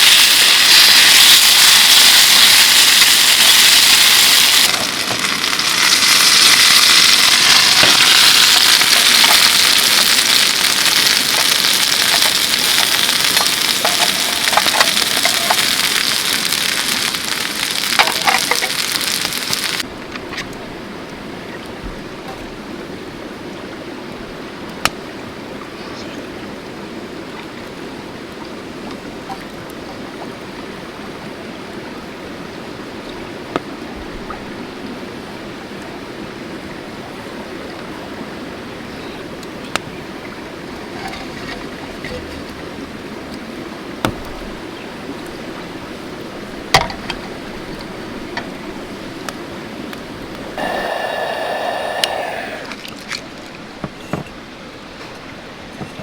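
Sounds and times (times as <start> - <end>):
loud crackling hiss: 0.0 - 19.9, 50.2 - 53.2
mountain stream flowing: 2.6 - 56.0.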